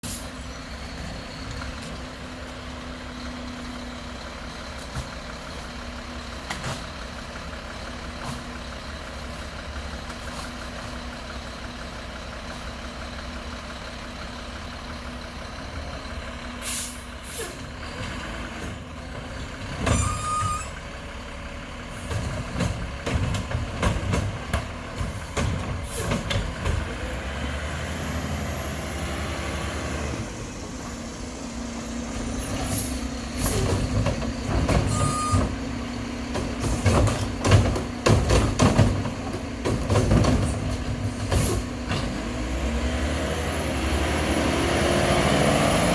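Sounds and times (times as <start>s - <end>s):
garbage truck engine running: 0.0s - 45.9s
air brake hiss: 16.6s - 17.6s, 32.5s - 33.7s
knocks and clatter: 22.0s - 27.0s, 36.3s - 42.2s.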